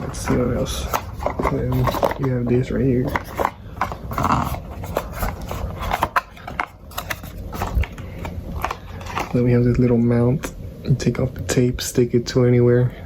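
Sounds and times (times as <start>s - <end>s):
packaging rustling: 0.0s - 9.5s.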